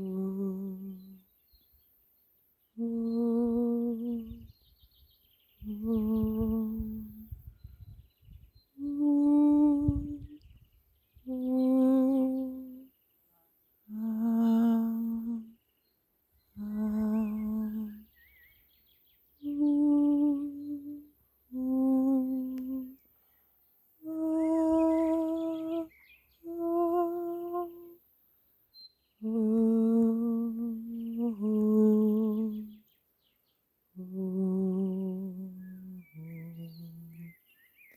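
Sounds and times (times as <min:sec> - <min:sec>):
person humming long notes: 0:00.0 - 0:01.2, 0:02.8 - 0:04.5, 0:05.6 - 0:07.4, 0:08.8 - 0:10.4, 0:11.3 - 0:12.9, 0:13.9 - 0:15.5, 0:16.6 - 0:18.0, 0:19.4 - 0:23.0, 0:24.0 - 0:28.0, 0:29.2 - 0:32.8, 0:34.0 - 0:37.3
faint bird chirps: 0:00.0 - 0:37.9.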